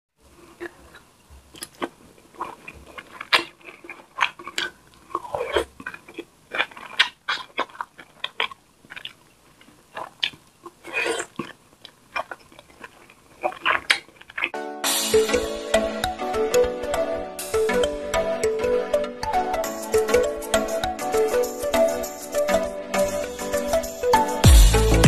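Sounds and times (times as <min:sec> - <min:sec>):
chewing and lip-smacking: 0:00.3 - 0:14.6.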